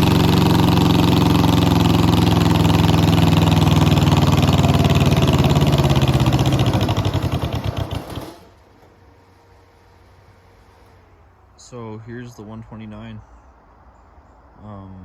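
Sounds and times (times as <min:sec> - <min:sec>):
tractor engine running: 0:00.0 - 0:09.4.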